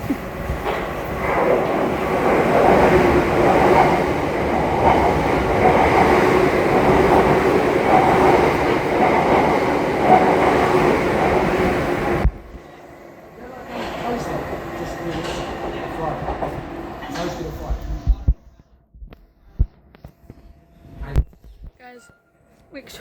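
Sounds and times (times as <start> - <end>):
electric train passing: 0.0 - 18.0.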